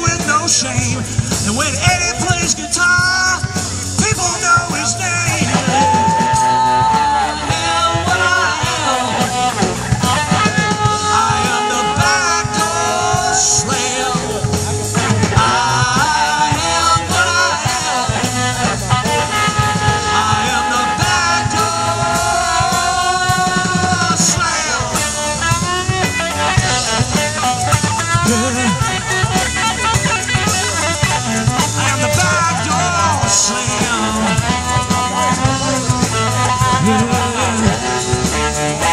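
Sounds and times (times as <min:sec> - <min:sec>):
bass: 0:00.0 - 0:38.9
drum kit beat: 0:00.0 - 0:38.9.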